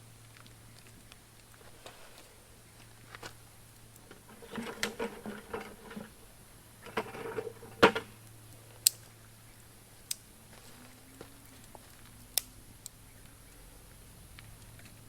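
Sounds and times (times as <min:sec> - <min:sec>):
cooking gear rattling and knocking: 0:04.0 - 0:08.2
sharp clicks: 0:08.2 - 0:09.2.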